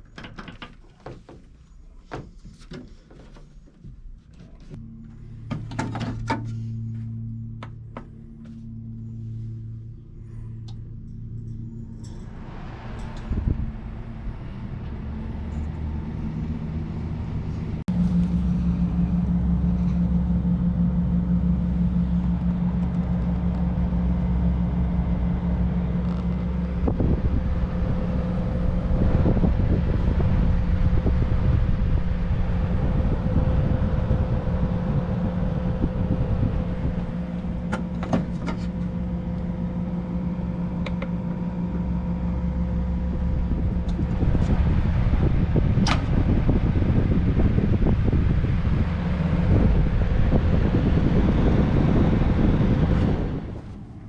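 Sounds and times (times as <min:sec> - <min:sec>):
machine humming: 0:04.0 - 0:54.0.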